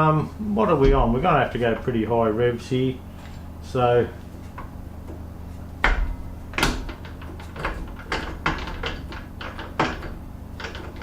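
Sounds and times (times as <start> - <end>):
low hum: 0.0 - 11.0
sharp metallic clicks and knocks: 5.8 - 11.0.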